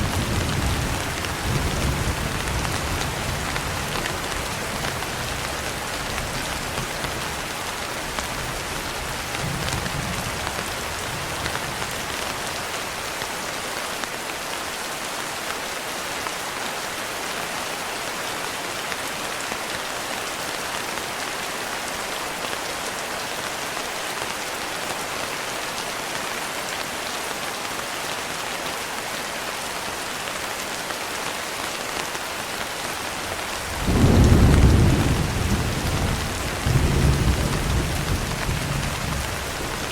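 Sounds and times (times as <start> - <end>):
steady rain: 0.0 - 39.9
thunder rumble: 33.6 - 39.9.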